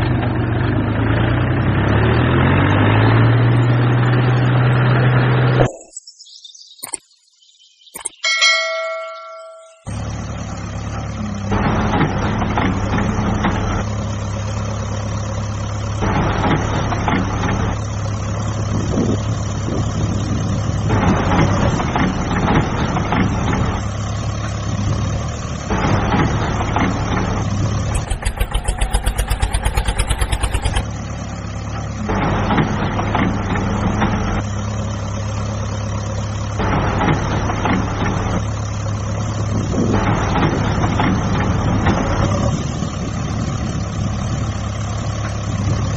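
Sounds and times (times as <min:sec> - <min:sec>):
short ringing tone: 0:08.2 - 0:10.0
truck engine running: 0:09.9 - 0:45.9.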